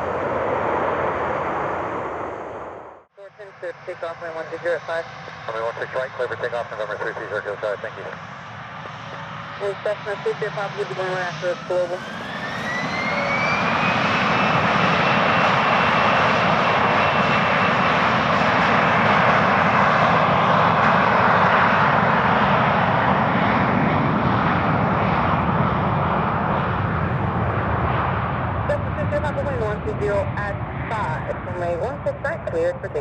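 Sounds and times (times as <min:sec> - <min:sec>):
jet engine roar: 0:00.0 - 0:33.0
jet engines spooling up: 0:10.3 - 0:32.9.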